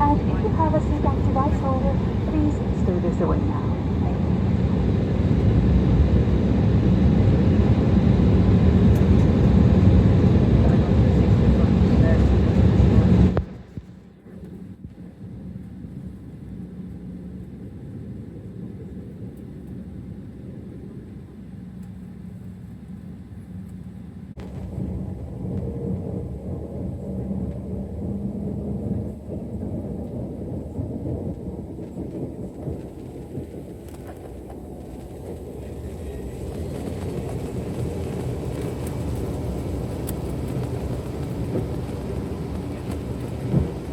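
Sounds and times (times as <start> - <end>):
faint hum: 0.0 - 8.3
airliner cabin engine rumble: 0.0 - 43.9.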